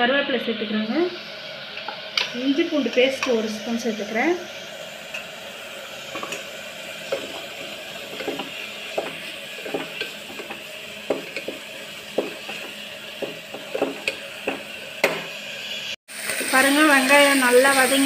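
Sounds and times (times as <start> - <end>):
onions sizzling in oil: 0.0 - 18.0
wooden spatula scraping pot: 6.1 - 14.7.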